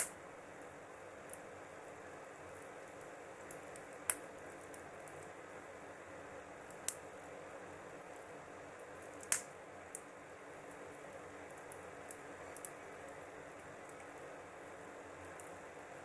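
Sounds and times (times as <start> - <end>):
burning wood popping loudly: 0.0 - 0.2, 8.2 - 10.1
wood fire crackling: 0.0 - 16.0.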